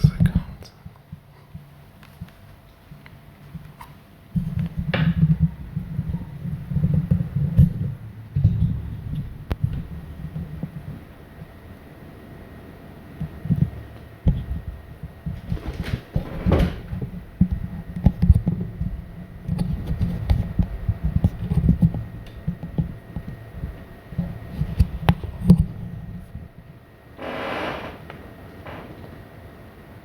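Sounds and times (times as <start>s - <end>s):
laptop fan whine: 0.0s - 30.0s
microphone handling thumps: 13.5s - 25.8s.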